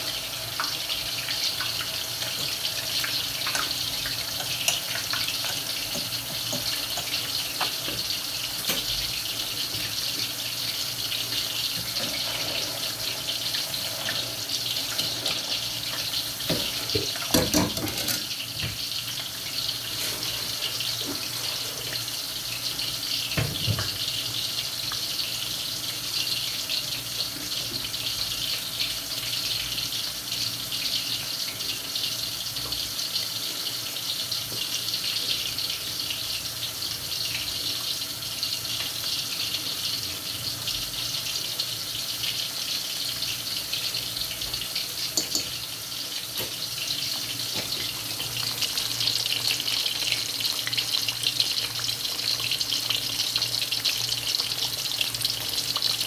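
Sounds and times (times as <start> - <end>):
tap water running into sink: 0.6 - 19.3, 22.6 - 24.2, 43.8 - 45.7
objects clunking in sink: 16.5 - 18.8, 23.4 - 24.0, 45.2 - 45.6.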